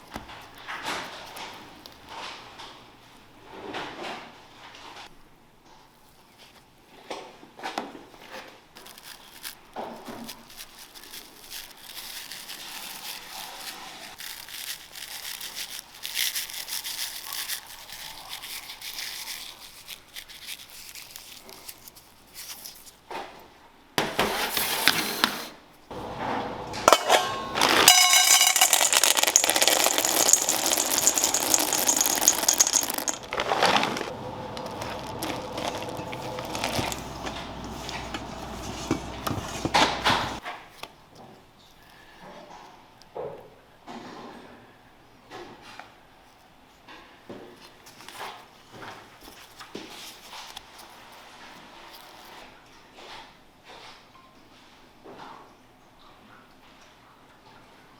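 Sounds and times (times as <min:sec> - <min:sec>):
utensils clinking and scraping: 0:25.9 - 0:40.4.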